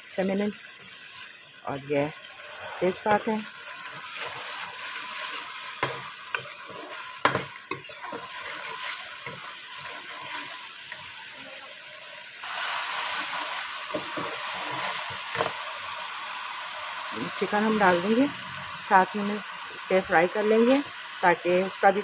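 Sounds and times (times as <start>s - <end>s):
spices sizzling in hot oil: 0.0s - 22.0s.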